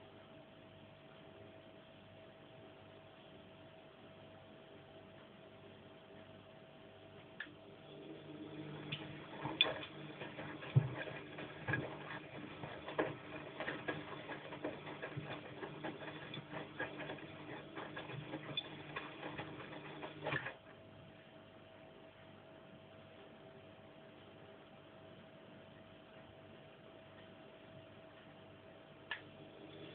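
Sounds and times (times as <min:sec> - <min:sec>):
washing machine motor hum: 0:00.1 - 0:25.6, 0:26.3 - 0:29.9
drum clicks and knocks: 0:08.9 - 0:20.6.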